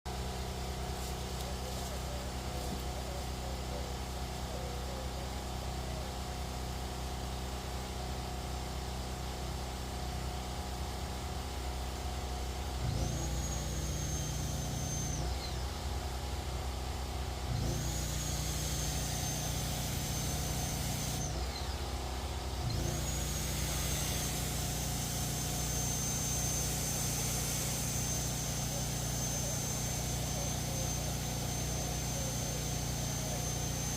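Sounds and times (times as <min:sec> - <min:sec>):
engine running: 0:00.1 - 0:33.9
high whine: 0:10.2 - 0:33.9.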